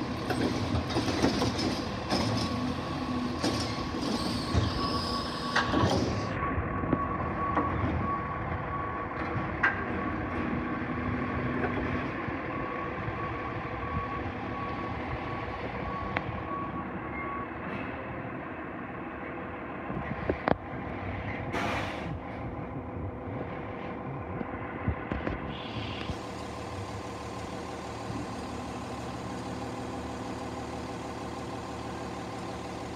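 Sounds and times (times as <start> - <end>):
truck engine running: 0.0 - 17.1, 18.2 - 32.9
truck reversing alarm beeping: 0.0 - 19.3.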